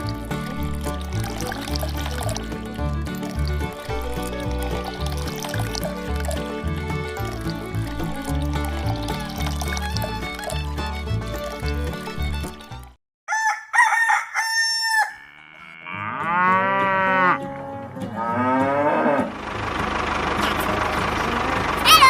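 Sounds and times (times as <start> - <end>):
background music: 0.0 - 13.0
cow mooing: 15.0 - 19.4.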